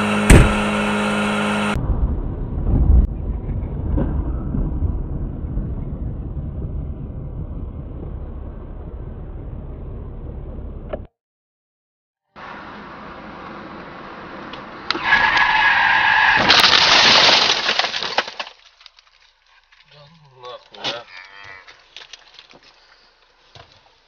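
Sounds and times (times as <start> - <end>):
vehicle and road rumble: 0.0 - 11.1, 12.3 - 24.0
vehicle hum: 0.0 - 11.1, 12.3 - 16.2
sharp loud collision bang: 0.2 - 0.7.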